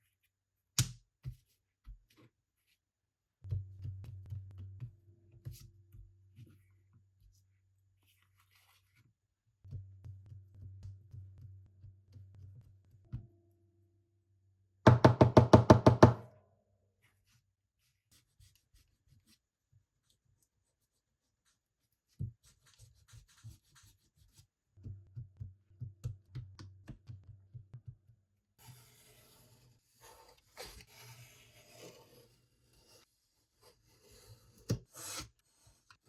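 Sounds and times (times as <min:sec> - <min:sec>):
rapid sharp knocks: 0:14.9 - 0:16.2.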